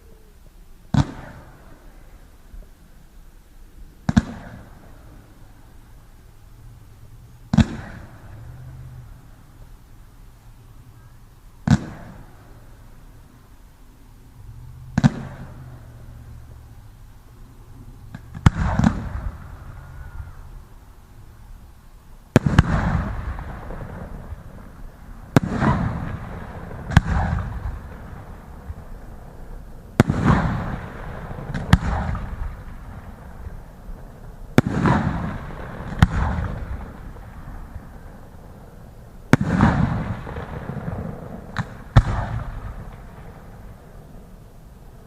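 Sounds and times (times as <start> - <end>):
fireworks bangs with echo: 0.9 - 2.2, 4.0 - 5.5, 7.4 - 9.3, 11.6 - 13.0, 14.7 - 16.5, 17.8 - 20.6, 22.3 - 45.0.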